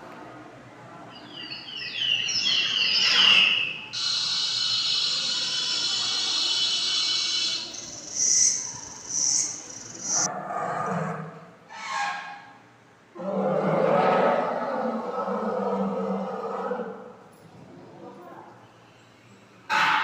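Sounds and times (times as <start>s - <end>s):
recorded wildlife calls on loudspeaker: 1.1s - 11.0s.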